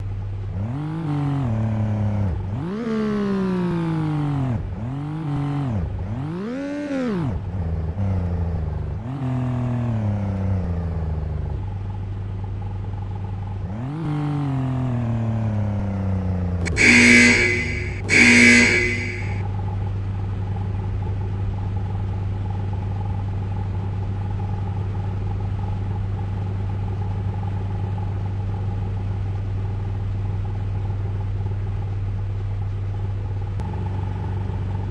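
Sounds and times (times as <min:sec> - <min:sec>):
low hum: 0:16.6 - 0:19.4
short loud blasts: 0:16.7 - 0:19.4.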